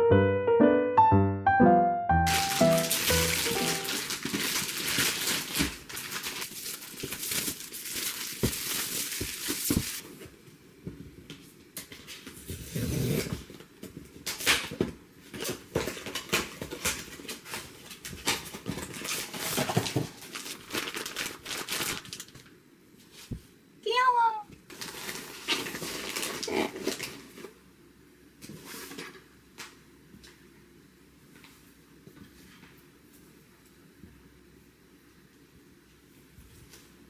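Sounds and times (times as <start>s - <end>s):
packaging crinkling and tearing: 2.2s - 10.1s, 14.2s - 22.5s, 24.7s - 27.6s.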